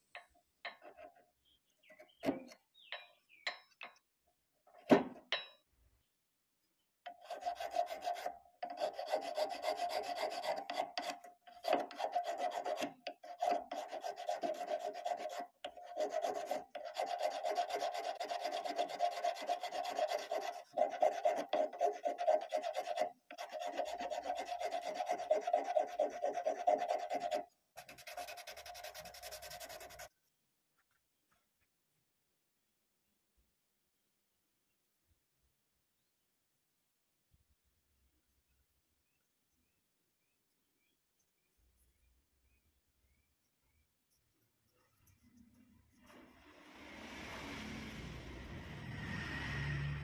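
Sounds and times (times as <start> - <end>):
wood rubbing by hand: 7.2 - 30.1.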